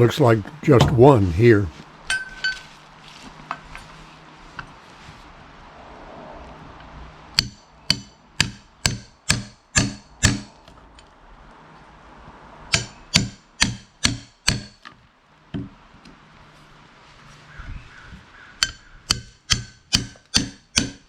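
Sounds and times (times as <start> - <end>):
hammer blows ringing on metal: 7.4 - 10.5, 12.7 - 14.8, 18.6 - 21.0.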